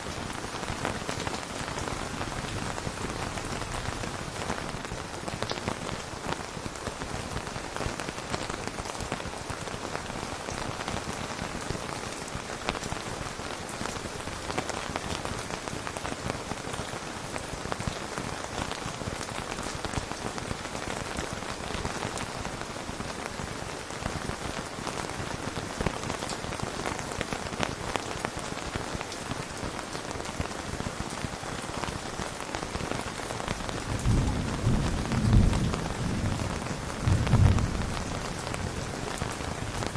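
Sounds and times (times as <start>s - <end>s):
steady rain: 0.0s - 39.9s
low rumble of thunder: 33.9s - 38.8s.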